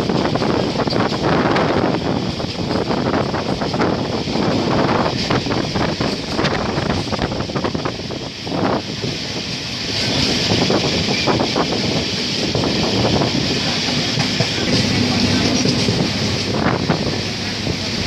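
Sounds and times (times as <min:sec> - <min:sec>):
train wheel and rail noise: 0:00.0 - 0:18.0
wind rushing: 0:00.0 - 0:18.0.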